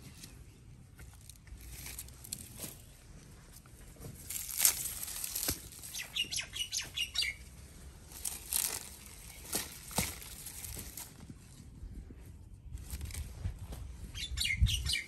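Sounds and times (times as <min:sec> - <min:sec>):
high bird chirps: 0:05.9 - 0:07.4, 0:14.1 - 0:15.0.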